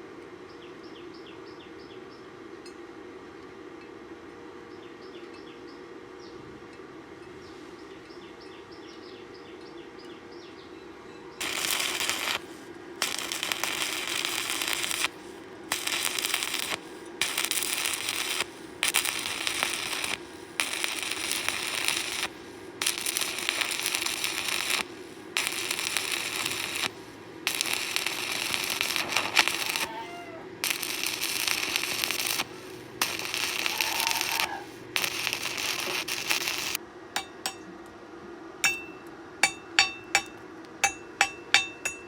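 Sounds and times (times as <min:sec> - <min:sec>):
steady low hum: 0:00.0 - 0:42.0
welding arc crackling: 0:11.4 - 0:37.6.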